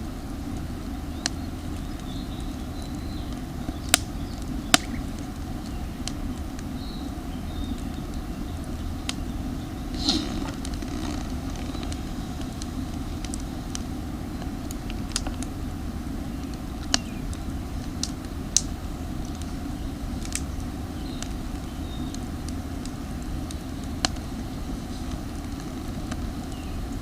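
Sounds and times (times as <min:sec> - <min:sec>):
campfire crackling: 0:00.0 - 0:27.0
fire popping and snapping: 0:00.0 - 0:27.0
low rushing noise: 0:08.6 - 0:27.0.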